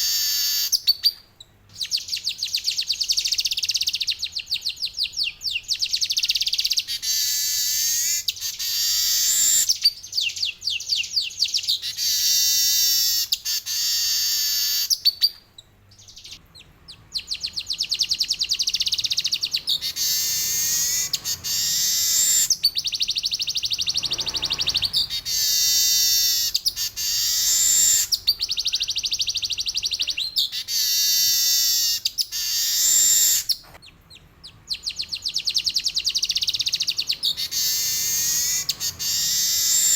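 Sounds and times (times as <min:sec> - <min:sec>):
weaver bird trilling song: 0:00.0 - 0:39.9.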